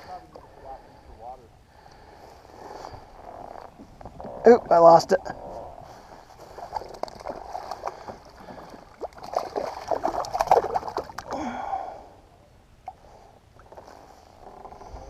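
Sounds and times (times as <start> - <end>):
water splashing against kayak: 2.2 - 11.6.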